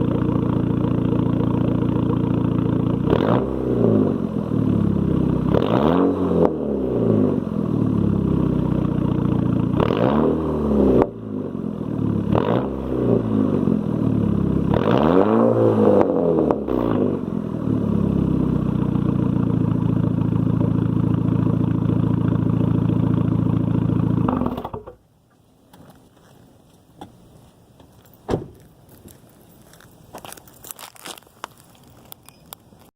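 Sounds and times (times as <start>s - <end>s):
car engine revving and idling: 0.0s - 24.9s.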